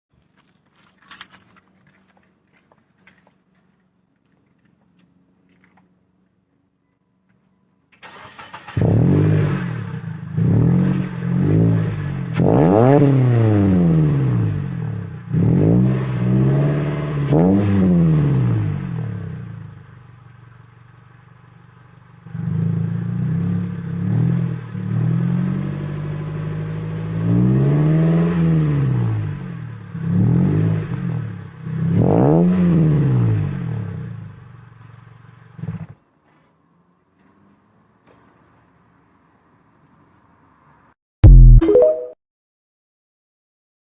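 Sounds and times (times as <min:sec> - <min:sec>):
car engine revving: 0:08.0 - 0:19.5.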